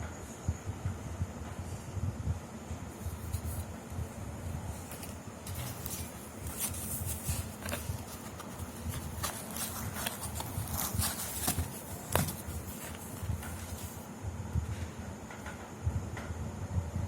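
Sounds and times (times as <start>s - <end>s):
packaging rustling: 4.7s - 14.1s.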